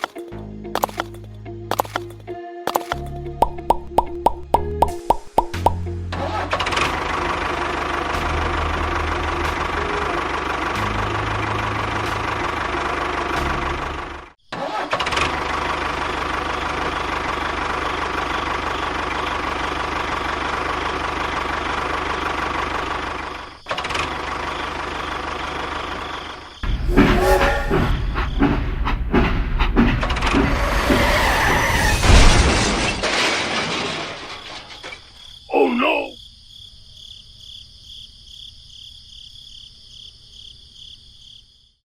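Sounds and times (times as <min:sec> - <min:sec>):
repeating knock: 0:00.8 - 0:05.9.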